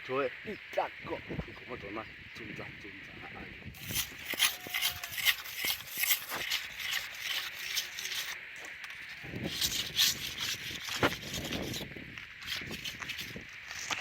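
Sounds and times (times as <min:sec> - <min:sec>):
scraping and rubbing: 0:03.8 - 0:14.0.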